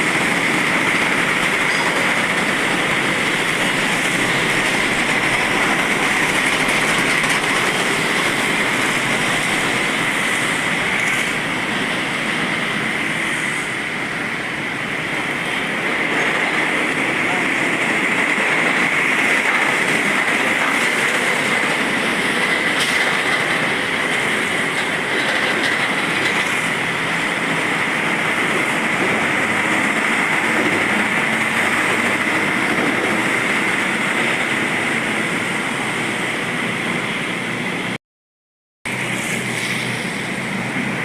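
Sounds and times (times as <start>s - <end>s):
heavy vehicles rolling past: 0.0s - 38.0s.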